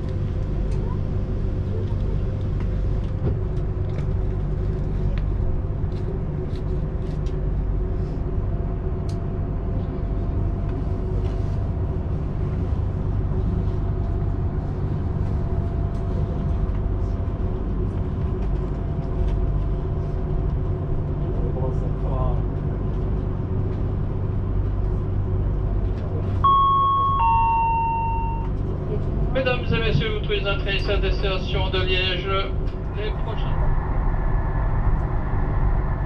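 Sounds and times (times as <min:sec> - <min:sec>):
train wheels rumbling on rails: 0:28.3 - 0:36.0.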